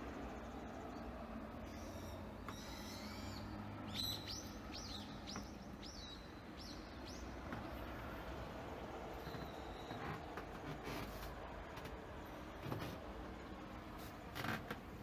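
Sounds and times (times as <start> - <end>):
small bird chirping: 1.6 - 7.4.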